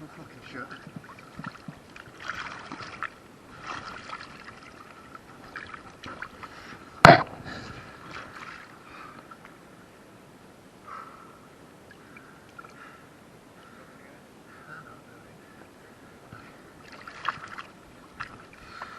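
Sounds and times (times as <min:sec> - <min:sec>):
paddle swishing water: 0:00.0 - 0:07.0, 0:07.6 - 0:09.6, 0:16.3 - 0:18.9
sharp loud hit: 0:07.0 - 0:07.4.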